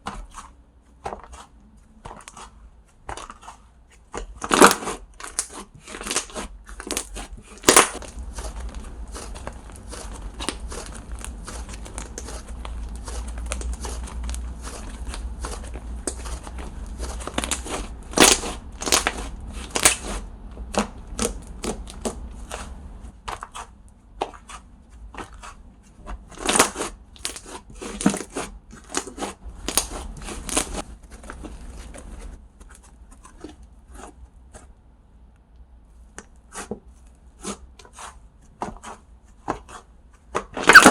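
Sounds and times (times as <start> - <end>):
slime crackling and popping: 4.1 - 22.7, 26.3 - 31.6, 40.4 - 40.9.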